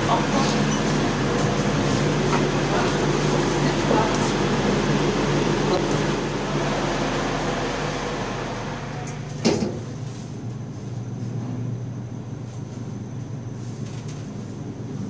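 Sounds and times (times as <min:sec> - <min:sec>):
elevator mechanical hum: 0:00.0 - 0:15.0.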